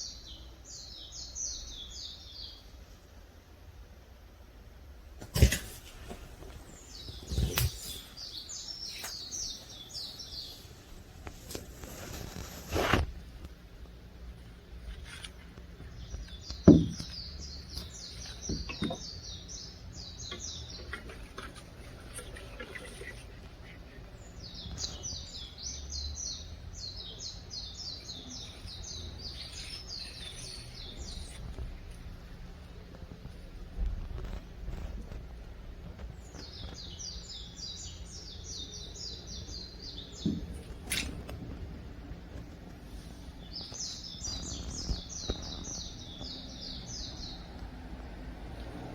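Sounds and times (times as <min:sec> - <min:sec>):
songbird chirping: 0:00.0 - 0:03.1, 0:05.4 - 0:48.9
low background hum: 0:00.0 - 0:48.9
dull knocks: 0:16.4 - 0:17.3.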